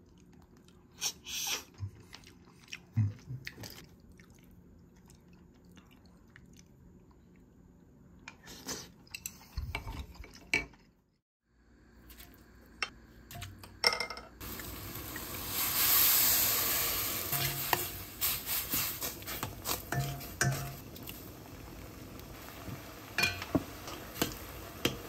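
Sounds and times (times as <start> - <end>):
food sizzling in a pan: 14.4 - 25.0
utensil clinking on cookware: 19.9 - 20.8, 23.2 - 25.0.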